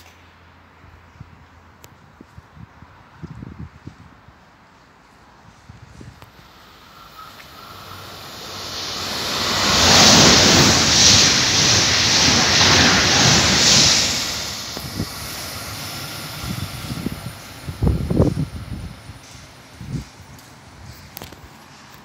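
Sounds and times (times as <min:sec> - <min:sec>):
high-speed train rushing past: 0:05.0 - 0:22.0.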